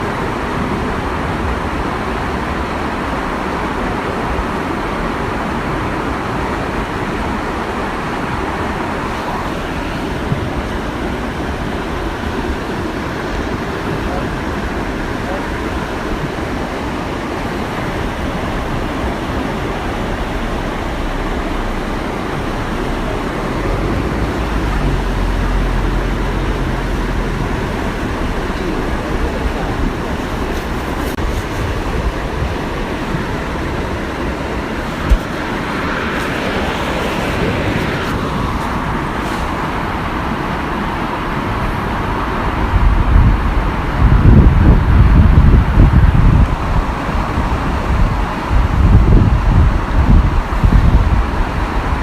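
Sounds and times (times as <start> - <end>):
waterfall rushing: 0.0 - 52.0
wind buffeting microphone: 0.0 - 52.0
low humming rumble: 8.0 - 41.5.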